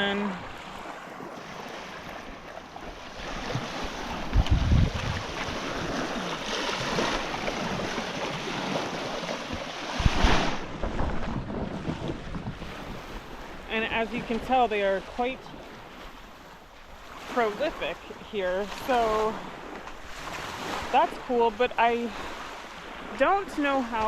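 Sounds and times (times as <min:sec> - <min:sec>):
ocean surf washing on beach: 0:00.0 - 0:24.0
wind buffeting the microphone: 0:03.2 - 0:24.0.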